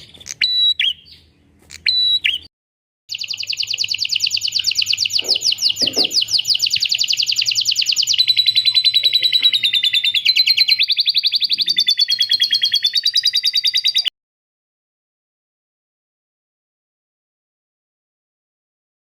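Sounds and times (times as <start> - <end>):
songbird fast trill: 3.1 - 14.1.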